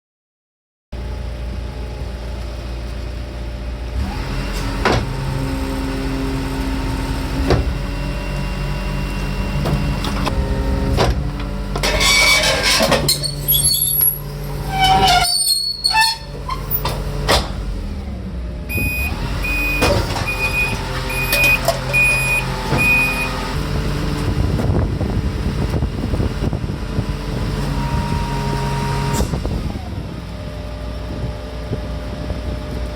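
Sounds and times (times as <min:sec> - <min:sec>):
garbage truck hydraulic hum: 0:04.0 - 0:24.8
short warning beeps: 0:18.7 - 0:23.5.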